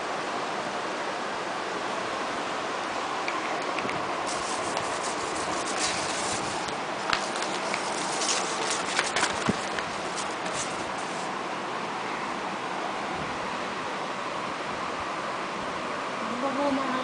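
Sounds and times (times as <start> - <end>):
steady hiss: 0.0 - 17.0
puppies scratching and rubbing: 4.3 - 11.3.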